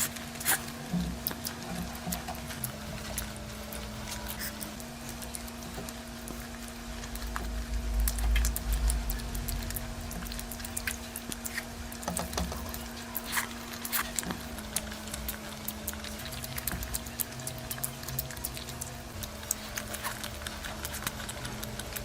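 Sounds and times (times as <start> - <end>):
faint steady hum: 0.0 - 22.0
wet chewing sounds: 0.0 - 22.0
low rumble: 6.8 - 11.0.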